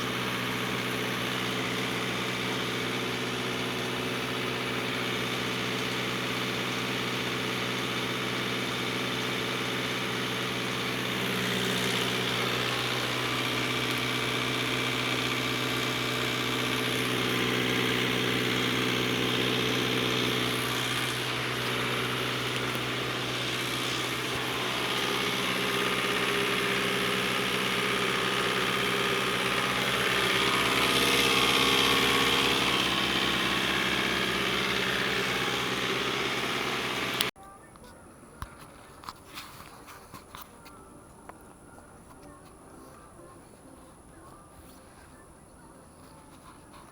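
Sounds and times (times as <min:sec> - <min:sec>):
motor humming steadily: 0:00.0 - 0:37.4.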